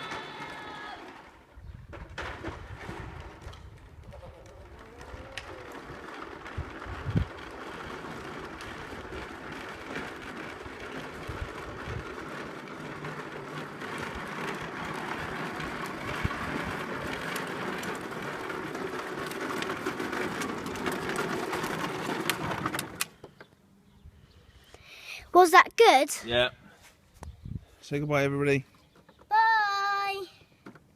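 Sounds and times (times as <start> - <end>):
toy tractor wheels rattling: 2.7 - 23.2.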